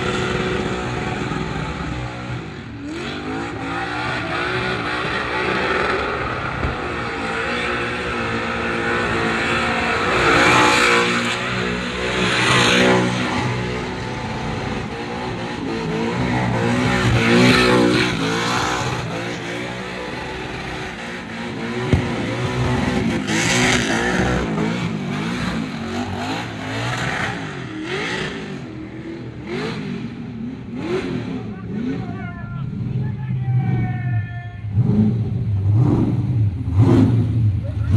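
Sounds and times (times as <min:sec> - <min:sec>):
car engine revving hard: 0:00.0 - 0:34.0, 0:34.6 - 0:37.9
sharp bang: 0:21.9 - 0:23.2.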